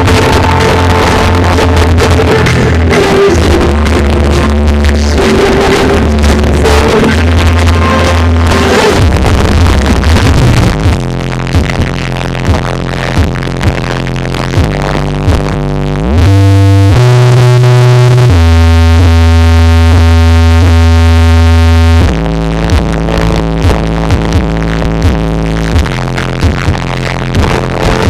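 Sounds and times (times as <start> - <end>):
deep steady bass note: 0.0 - 28.0
loud electronic dance music: 0.0 - 28.0
kick drum thumping: 9.1 - 11.9, 13.2 - 13.8.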